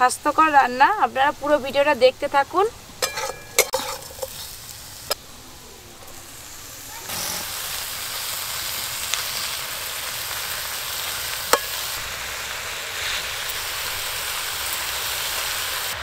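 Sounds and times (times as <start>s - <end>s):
leaves sizzling in hot oil: 0.0s - 16.0s
metal spatula clinking on pan: 3.0s - 4.4s.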